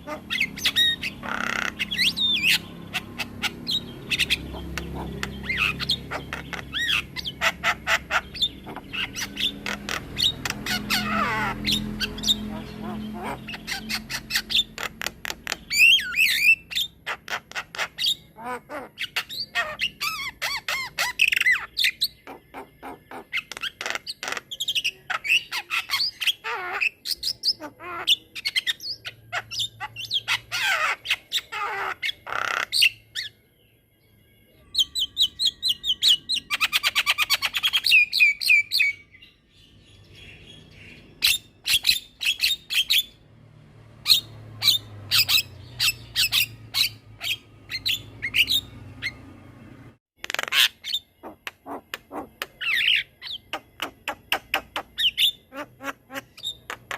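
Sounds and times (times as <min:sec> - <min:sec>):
bird singing clicks and whistles: 0:53.5 - 0:55.0.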